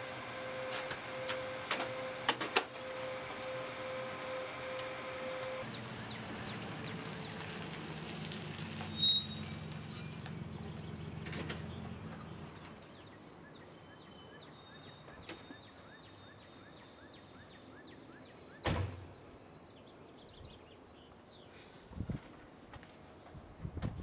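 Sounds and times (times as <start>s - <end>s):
birds chirping: 5.0s - 7.7s, 9.0s - 21.8s.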